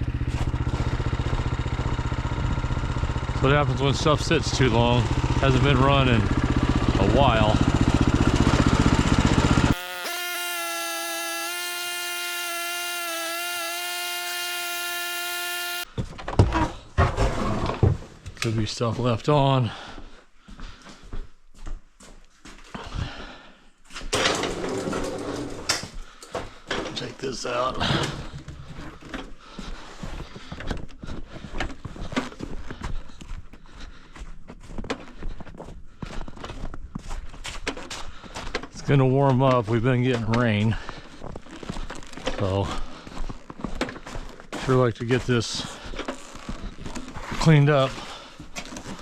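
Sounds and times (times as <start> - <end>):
small electric motor whining: 8.6 - 15.9.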